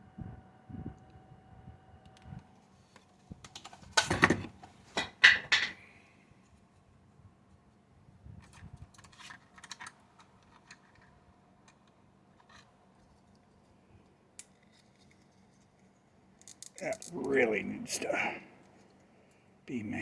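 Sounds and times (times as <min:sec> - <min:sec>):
small parts clicking and tapping: 0:08.4 - 0:17.2.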